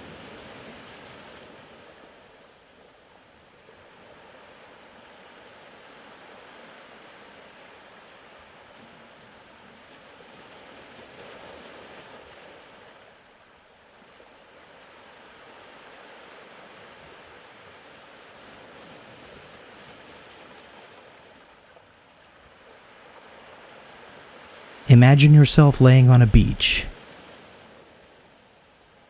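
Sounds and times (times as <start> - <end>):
faint ocean waves: 24.9 - 26.9.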